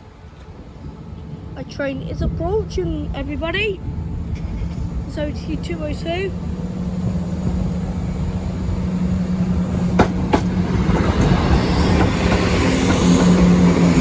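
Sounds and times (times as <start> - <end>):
diesel train engine hum: 0.0 - 14.0
train wheel rumble: 0.0 - 14.0.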